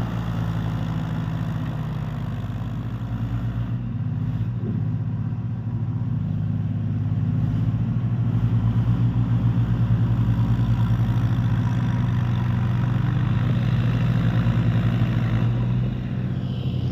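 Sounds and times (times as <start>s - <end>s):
tractor diesel engine running: 0.0s - 16.9s.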